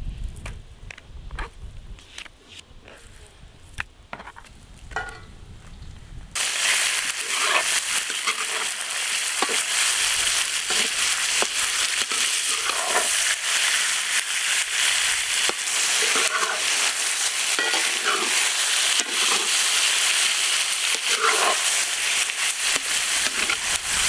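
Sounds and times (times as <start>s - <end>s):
utensil scraping pan: 6.4s - 13.8s, 14.9s - 24.0s
food sizzling in hot oil: 6.4s - 24.0s.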